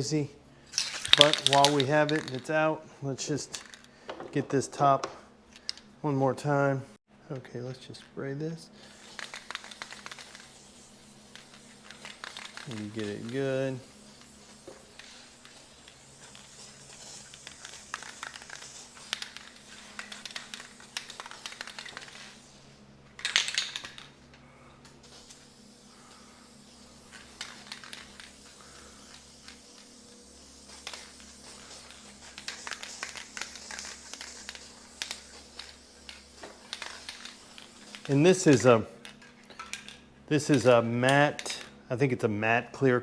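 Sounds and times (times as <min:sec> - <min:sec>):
aerosol can spraying: 0:00.8 - 0:02.7, 0:08.8 - 0:24.1, 0:25.0 - 0:39.8.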